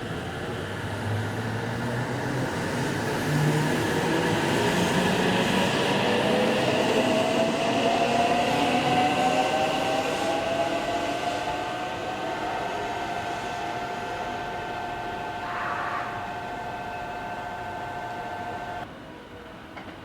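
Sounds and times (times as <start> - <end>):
train whine pulling away: 0.0 - 19.9.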